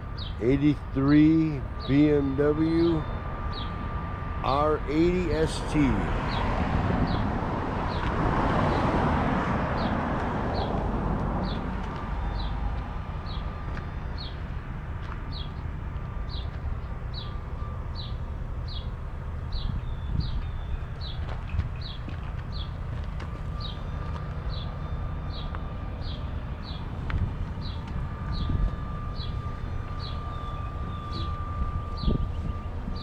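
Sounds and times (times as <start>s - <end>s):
bird chirping: 0.0s - 3.8s, 27.6s - 33.0s
low steady rumble: 0.0s - 6.2s, 10.4s - 33.0s
broad rush of noise: 4.0s - 11.2s.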